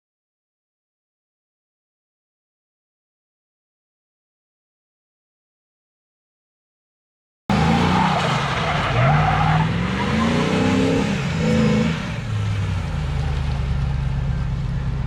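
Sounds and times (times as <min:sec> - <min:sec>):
pickup truck engine accelerating: 0:07.5 - 0:15.0.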